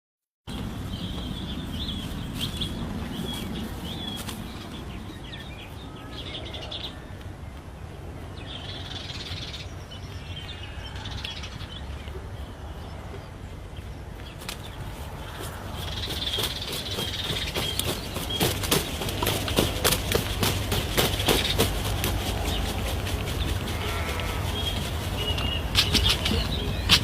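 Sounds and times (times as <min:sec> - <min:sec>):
birds chirping and trilling: 0:00.5 - 0:27.0.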